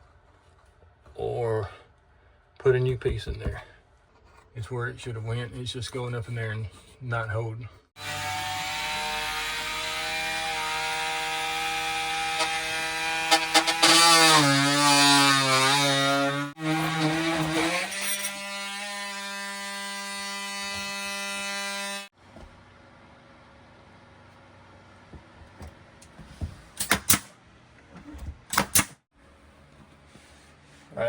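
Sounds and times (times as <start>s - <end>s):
reciprocating saw cutting wood: 8.0s - 22.1s.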